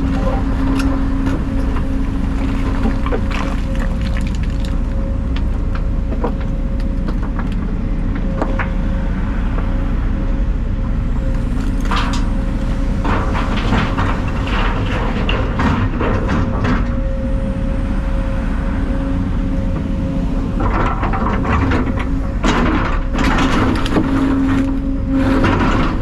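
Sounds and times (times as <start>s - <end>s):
clicks and rattles: 0.0s - 5.5s
diesel engine rumbling: 0.0s - 26.0s.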